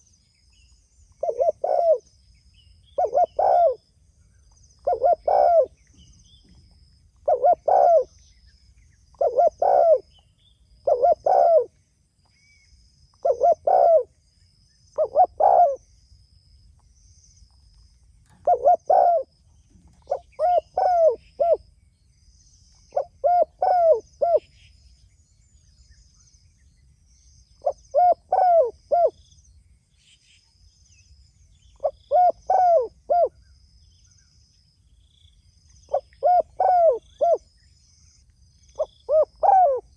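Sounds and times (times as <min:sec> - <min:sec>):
faint high chirping: 0:00.0 - 0:39.9
dove cooing: 0:01.2 - 0:02.0, 0:03.0 - 0:03.8, 0:04.8 - 0:05.8, 0:07.2 - 0:08.2, 0:09.2 - 0:10.1, 0:10.8 - 0:11.8, 0:13.2 - 0:14.1, 0:15.0 - 0:15.8, 0:18.3 - 0:19.3, 0:19.9 - 0:21.6, 0:22.9 - 0:24.5, 0:27.6 - 0:29.2, 0:31.8 - 0:33.4, 0:35.9 - 0:37.4, 0:38.8 - 0:39.9.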